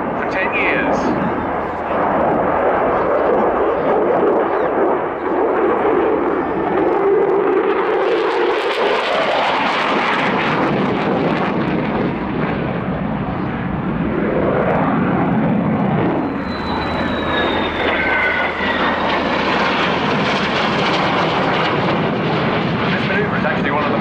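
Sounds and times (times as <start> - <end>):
high whine: 0.0 - 8.3, 16.2 - 24.0
jet engine noise: 0.0 - 24.0.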